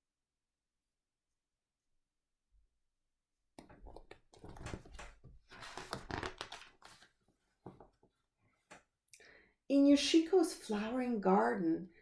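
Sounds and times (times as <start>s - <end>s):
paper pages rustling: 3.7s - 8.1s.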